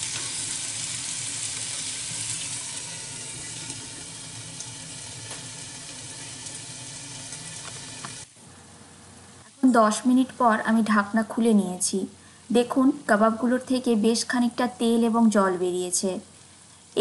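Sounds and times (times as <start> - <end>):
meat sizzling in frying pan: 0.0 - 8.3.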